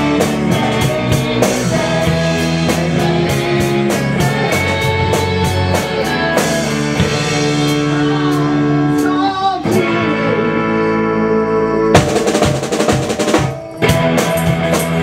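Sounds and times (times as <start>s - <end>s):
guitar chords ringing: 0.0s - 15.0s
rock band playing: 0.0s - 15.0s.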